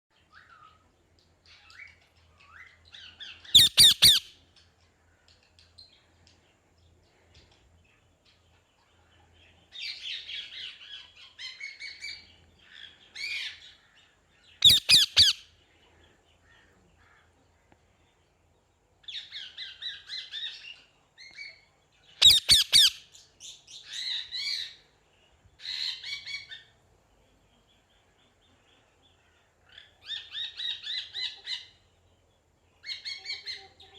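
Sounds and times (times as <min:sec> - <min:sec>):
parrot chattering chirps: 0:03.5 - 0:04.3, 0:14.6 - 0:15.4, 0:22.2 - 0:23.0
parrot harsh squawk: 0:03.6 - 0:04.3, 0:14.6 - 0:15.4, 0:22.2 - 0:23.0.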